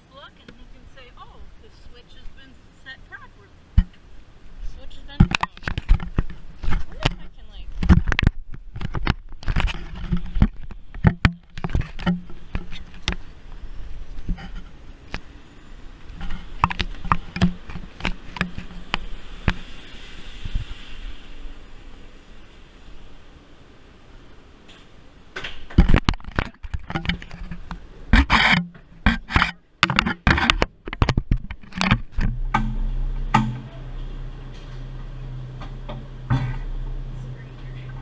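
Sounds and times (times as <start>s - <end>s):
steady low hum: 0.0s - 38.0s
clanks knocks and scrapes: 5.1s - 13.2s, 14.2s - 14.8s, 16.1s - 19.8s, 24.7s - 37.4s.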